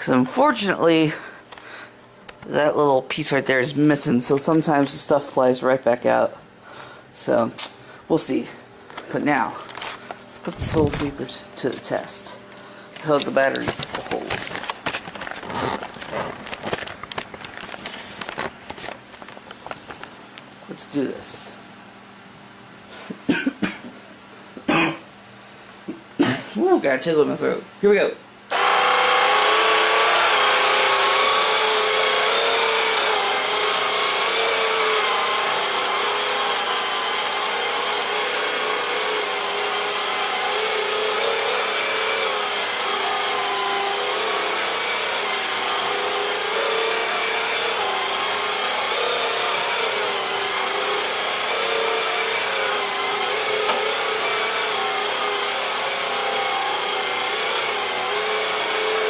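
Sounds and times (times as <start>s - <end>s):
cordless sweeper motor and brushes: 9.0s - 20.0s, 28.5s - 59.0s.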